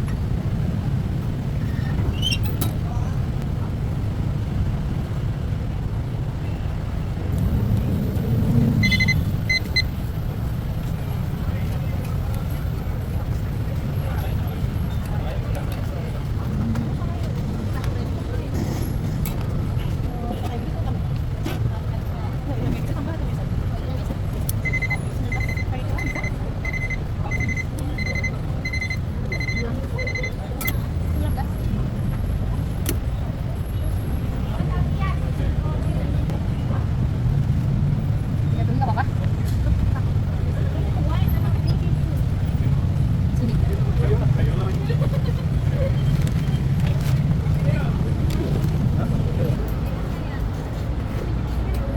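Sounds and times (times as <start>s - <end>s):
street traffic rumble: 0.0s - 51.9s
high electronic beeps: 8.6s - 10.0s, 24.6s - 30.4s.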